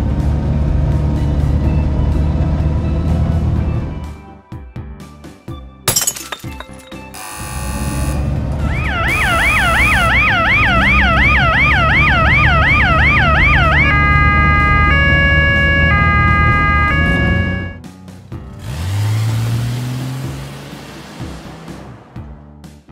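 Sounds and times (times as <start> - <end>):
background music: 0.0 - 22.9
fast yelping siren: 8.7 - 17.8.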